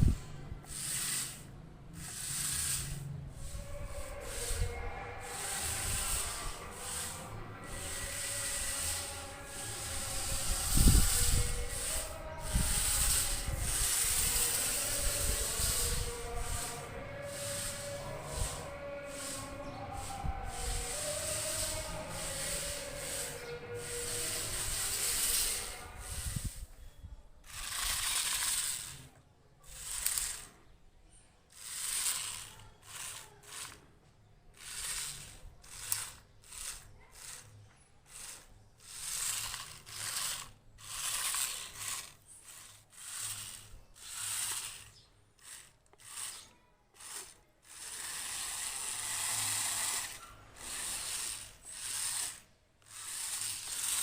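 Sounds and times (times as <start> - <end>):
small electric motors whirring: 0.0 - 26.8, 27.4 - 30.6, 31.5 - 33.8, 34.6 - 54.0.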